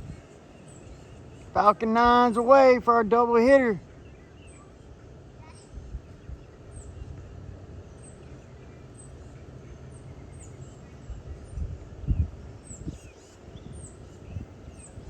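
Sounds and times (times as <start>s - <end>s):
small birds chirping: 3.6s - 15.0s.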